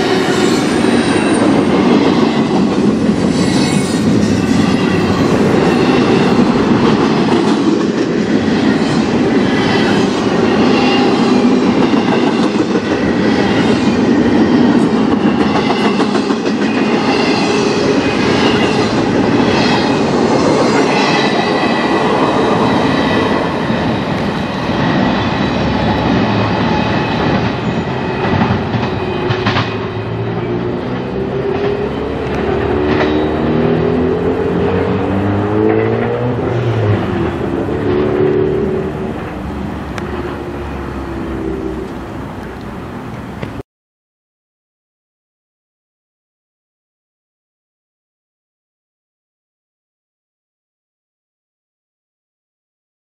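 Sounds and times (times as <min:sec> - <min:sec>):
high wheel squeals: 0:00.0 - 0:06.7, 0:16.8 - 0:35.4
freight train wheels rumbling: 0:00.0 - 0:43.6.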